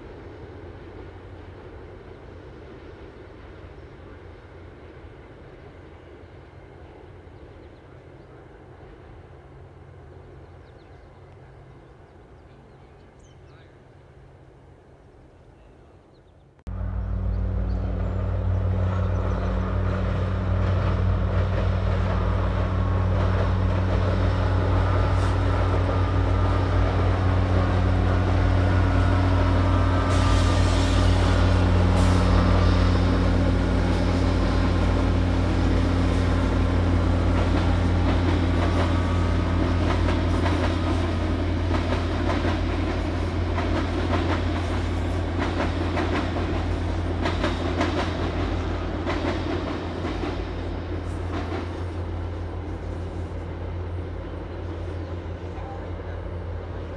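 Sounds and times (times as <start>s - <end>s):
diesel locomotive drone: 0.0s - 56.9s
wheels rumbling on steel bridge: 16.7s - 56.9s.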